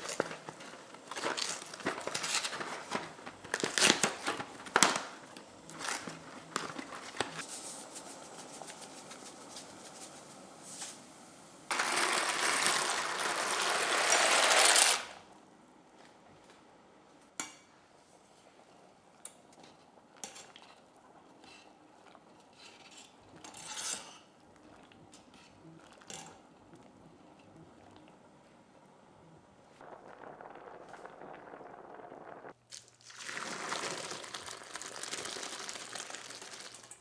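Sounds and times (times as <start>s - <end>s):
hissing or grinding noise: 11.7s - 15.2s, 29.8s - 32.6s.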